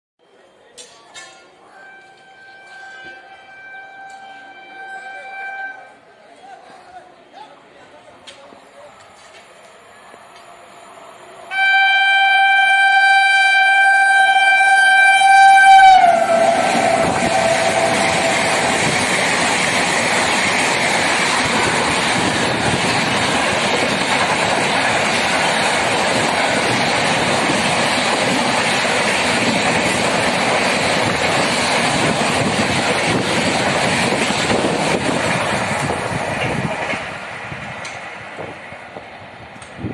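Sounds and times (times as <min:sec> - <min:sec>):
train coaches rushing past: 0:00.3 - 0:39.9
train horn: 0:01.6 - 0:06.0, 0:11.5 - 0:19.1.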